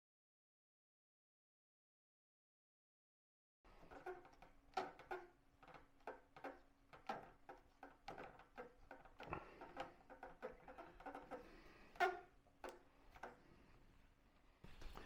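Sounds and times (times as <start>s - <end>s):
fingers tapping plastic: 3.8s - 13.4s.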